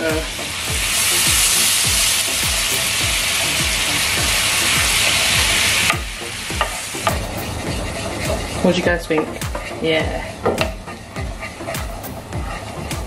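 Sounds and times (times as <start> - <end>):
sauce sizzling in a frying pan: 0.0 - 13.0
plastic spoon stirring: 6.6 - 13.0.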